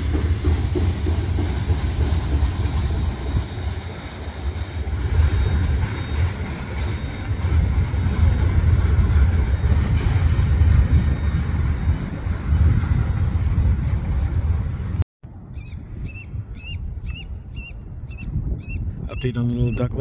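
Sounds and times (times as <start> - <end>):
freight train rumbling by: 0.0 - 20.0.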